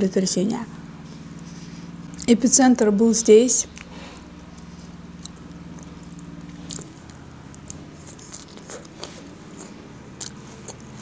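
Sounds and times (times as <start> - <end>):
steady low hum: 0.0 - 11.0
chewing salad: 3.6 - 11.0
sharp crunches: 3.7 - 11.0.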